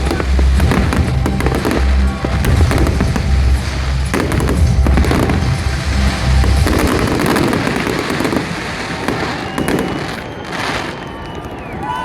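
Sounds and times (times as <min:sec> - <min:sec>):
loud music with deep bass: 0:00.0 - 0:09.2
sharp fireworks bangs: 0:00.0 - 0:11.7
fireworks bursting and crackling: 0:00.0 - 0:12.0.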